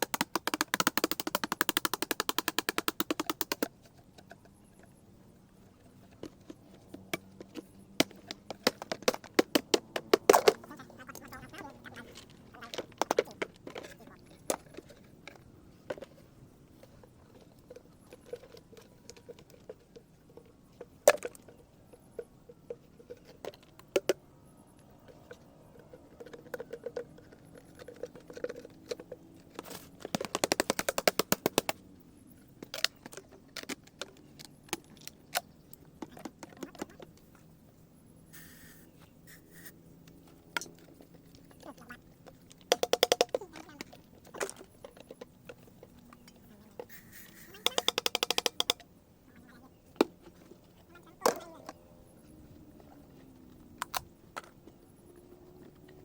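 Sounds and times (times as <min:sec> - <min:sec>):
dried gourds being struck: 0:00.0 - 0:03.7, 0:42.7 - 0:43.4, 0:46.9 - 0:48.8
seeds rattling in shells: 0:46.8 - 0:48.8.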